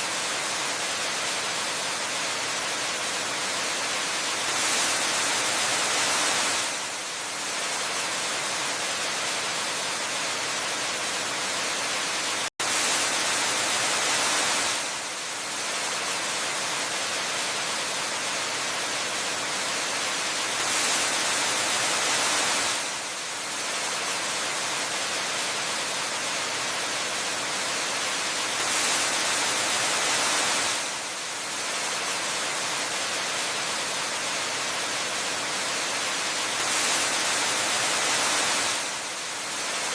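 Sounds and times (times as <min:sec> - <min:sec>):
waterfall rushing hiss: 0:00.0 - 0:39.9.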